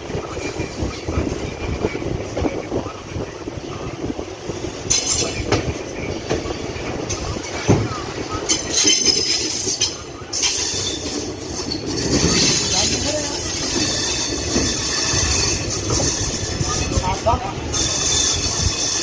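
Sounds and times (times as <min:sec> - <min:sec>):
train coaches rolling: 0:00.0 - 0:19.0
wheels and brakes squealing: 0:07.0 - 0:17.1, 0:17.7 - 0:19.0.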